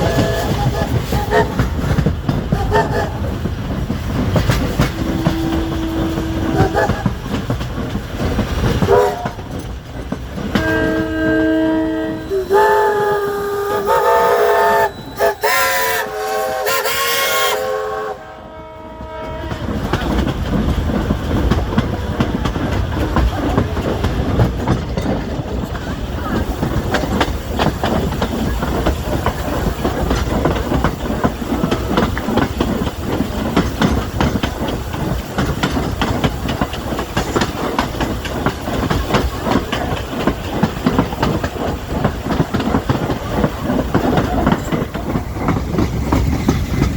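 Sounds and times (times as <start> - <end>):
steam locomotive whistle: 0.0 - 1.6, 4.9 - 7.1, 8.9 - 9.4, 10.5 - 19.7
train wheels clickety-clack: 0.0 - 18.2, 18.8 - 46.9.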